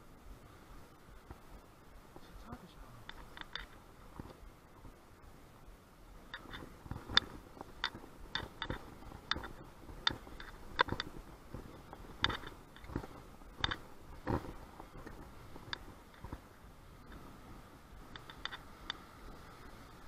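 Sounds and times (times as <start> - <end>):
sharp clicks and taps: 6.3 - 16.4.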